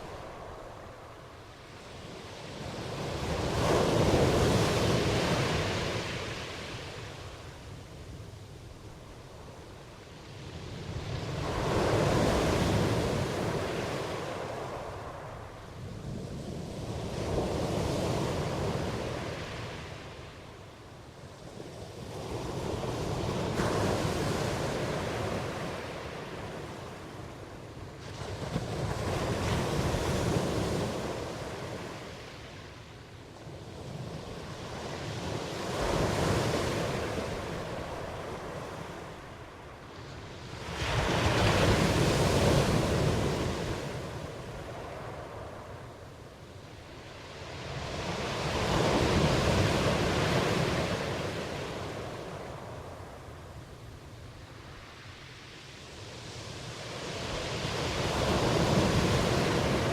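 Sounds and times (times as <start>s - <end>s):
ocean waves washing in: 34.0s - 59.9s.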